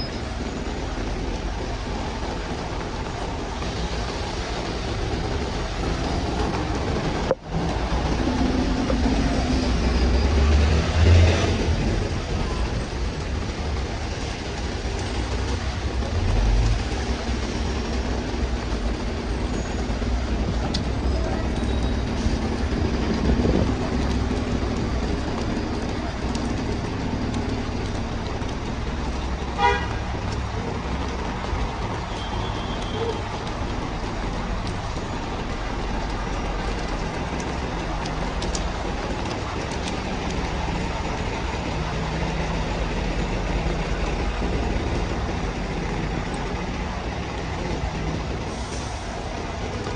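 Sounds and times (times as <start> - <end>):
city traffic: 0.0 - 49.9
passing vehicle engine rumble: 0.0 - 49.9
rain and tyres on wet road: 0.0 - 49.9
car horn toot: 29.6 - 30.0.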